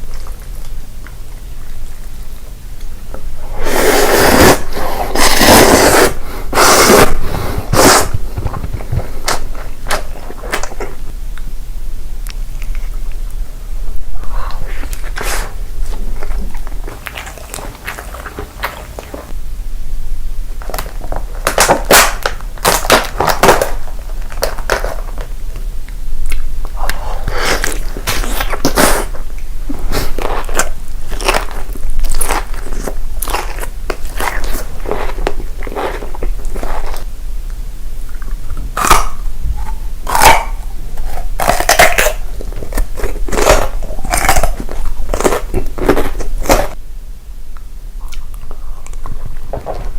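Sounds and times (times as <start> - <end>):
crackly chewing: 0.0 - 3.3, 4.4 - 11.5, 12.2 - 13.5, 14.4 - 19.4, 20.6 - 46.8, 47.6 - 49.9
crunchy bites: 20.6 - 25.3, 26.2 - 37.1, 38.1 - 46.8.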